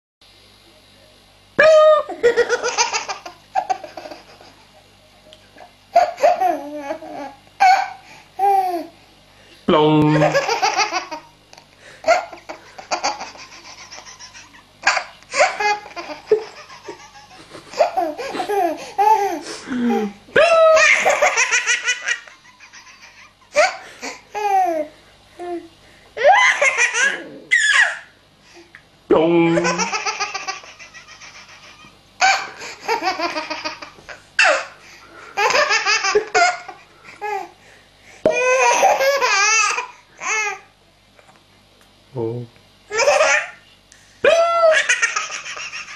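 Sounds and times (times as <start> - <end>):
baby laughing: 1.6 - 4.7, 5.9 - 8.9, 10.1 - 11.3, 12.0 - 25.6, 26.2 - 28.1, 29.6 - 34.8, 35.4 - 37.5, 38.3 - 40.6, 42.9 - 43.6, 44.4 - 45.9.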